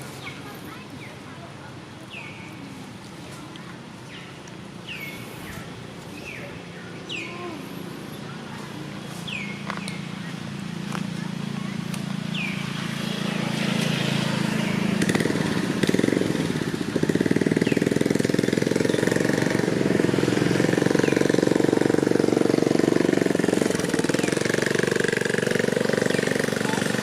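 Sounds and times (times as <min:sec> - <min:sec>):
small engine running: 0:10.8 - 0:27.0.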